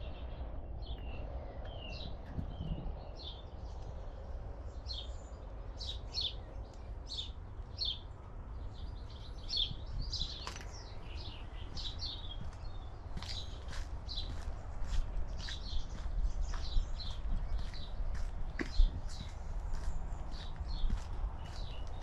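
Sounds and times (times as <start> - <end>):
small birds chirping: 0.0 - 22.0
steady low rumble: 0.0 - 22.0.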